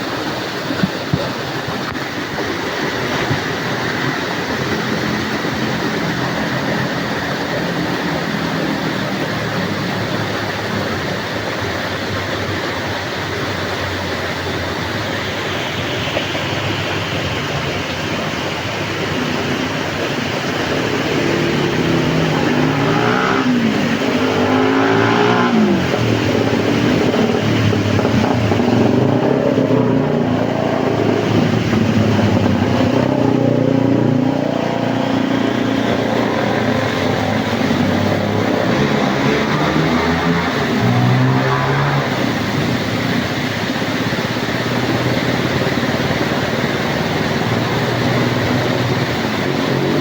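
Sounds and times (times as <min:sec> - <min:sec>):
heavy rain hissing: 0:00.0 - 0:50.0
vehicle engine passing: 0:16.2 - 0:50.0.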